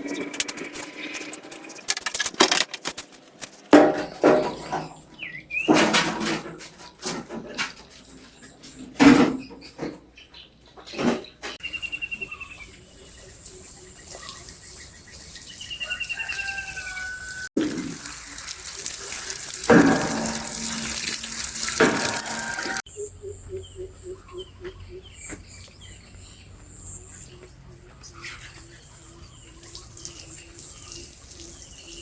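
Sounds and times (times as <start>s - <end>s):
birds chirping and trilling: 7.9s - 17.4s, 18.3s - 32.0s
running splashing water: 11.8s - 22.8s, 29.5s - 32.0s.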